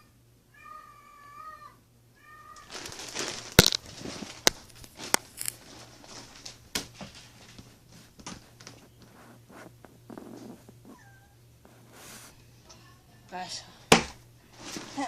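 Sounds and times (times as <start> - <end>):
cat meowing: 0.0 - 3.0, 10.0 - 11.4
rustling and handling noise: 2.4 - 15.0.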